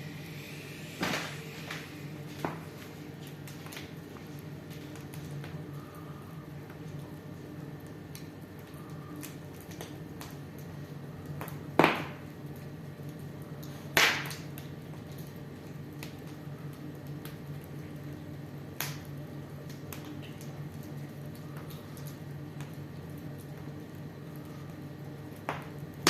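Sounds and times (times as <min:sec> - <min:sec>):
wood fire crackling: 0:00.0 - 0:26.0
loud pops from fire: 0:00.4 - 0:05.7, 0:11.3 - 0:12.4, 0:13.6 - 0:15.4, 0:18.7 - 0:20.6.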